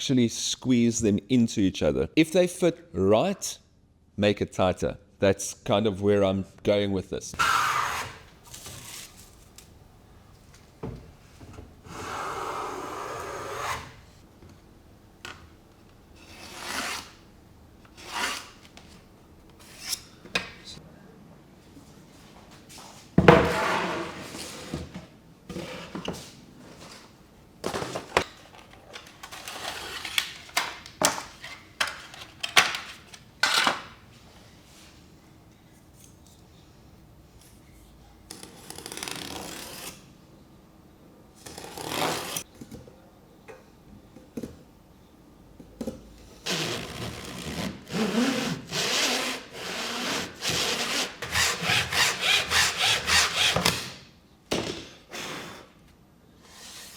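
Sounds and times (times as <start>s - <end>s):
hand saw sawing wood: 7.4s - 8.3s, 46.5s - 53.9s.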